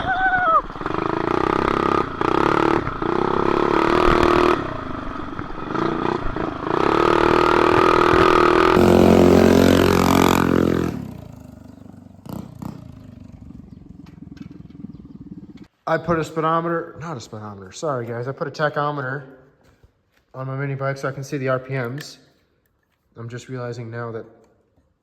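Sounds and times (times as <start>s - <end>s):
mini bike engine revving: 0.0s - 15.7s.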